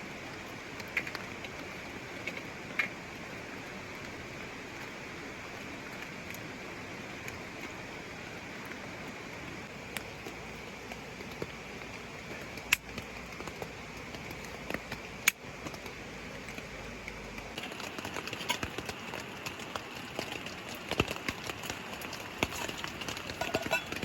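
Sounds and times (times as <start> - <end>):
raindrops tapping: 0.0 - 24.0
mountain stream rushing: 13.2 - 24.0.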